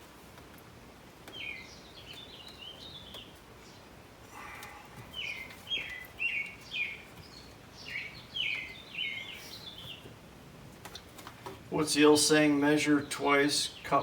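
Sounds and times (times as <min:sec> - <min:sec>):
songbird chirping: 0:01.1 - 0:10.2.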